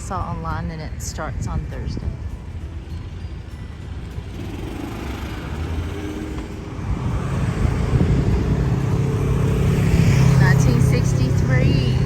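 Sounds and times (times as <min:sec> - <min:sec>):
street traffic: 0:00.0 - 0:12.0
car engine running: 0:04.1 - 0:12.0.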